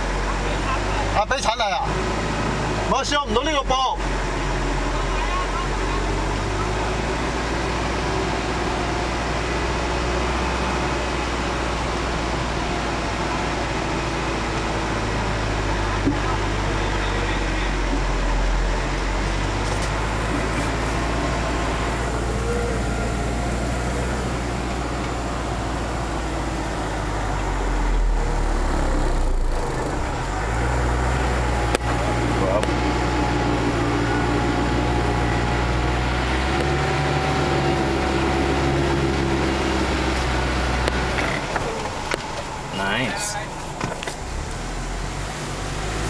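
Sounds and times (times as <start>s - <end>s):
vehicle engine droning: 0.0s - 46.0s.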